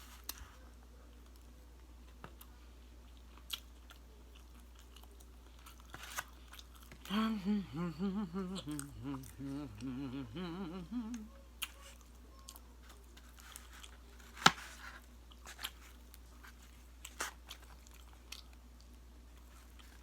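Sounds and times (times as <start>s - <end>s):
woman chewing food: 2.3s - 7.2s, 7.8s - 14.2s, 15.2s - 20.0s
woman humming: 7.0s - 11.5s.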